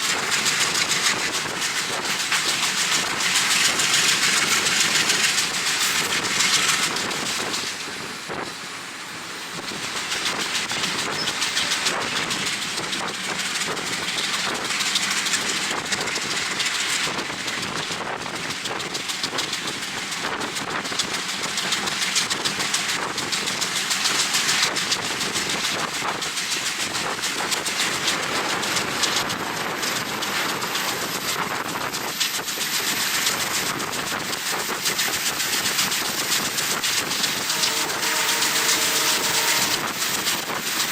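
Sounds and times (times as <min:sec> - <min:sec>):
train wheels clattering on rails: 0:00.0 - 0:40.9
wind rushing over microphone: 0:24.6 - 0:40.9.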